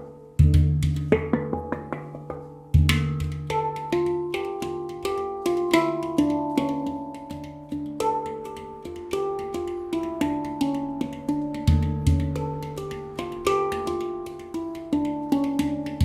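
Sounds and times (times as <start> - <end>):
handpan melody: 0.0 - 16.0.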